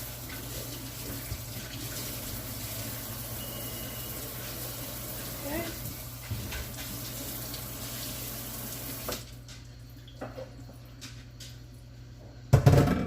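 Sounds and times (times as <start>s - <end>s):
tap water splashing on meat: 5.8s - 8.2s, 8.8s - 9.6s.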